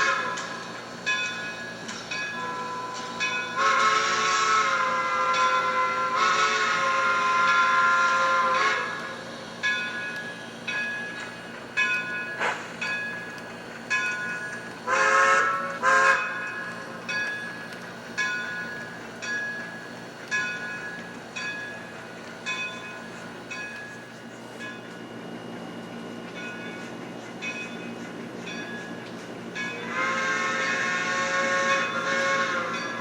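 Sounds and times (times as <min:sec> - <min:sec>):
train whistle blasts: 0:00.0 - 0:00.6, 0:02.3 - 0:09.5, 0:14.8 - 0:16.4, 0:29.8 - 0:33.0
locomotive bell ringing: 0:00.0 - 0:33.0.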